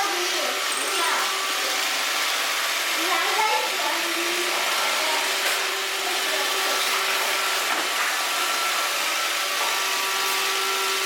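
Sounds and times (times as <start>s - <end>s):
robot vacuum cleaner running: 0.0s - 11.0s.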